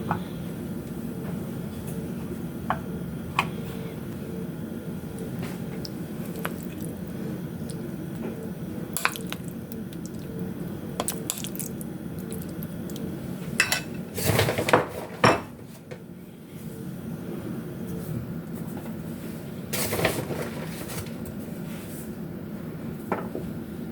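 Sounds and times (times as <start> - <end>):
steady low hum: 0.0 - 14.8.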